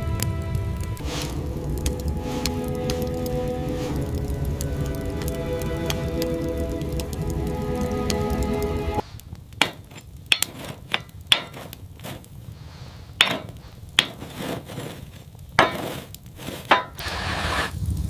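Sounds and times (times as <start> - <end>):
steady hiss: 0.0 - 18.0
hard objects knocking and clinking: 9.6 - 12.2, 13.2 - 14.7, 15.6 - 17.0.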